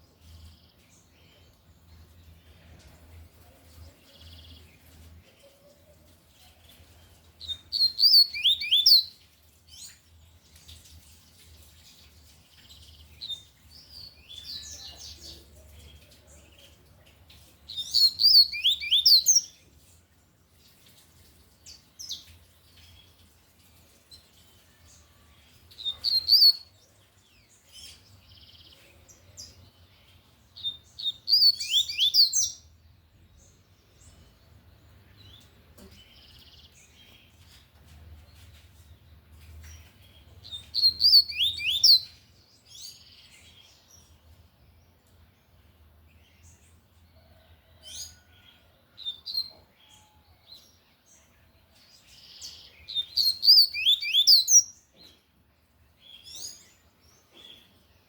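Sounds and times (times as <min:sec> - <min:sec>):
seedeater whistled song: 0:40.9 - 0:42.1.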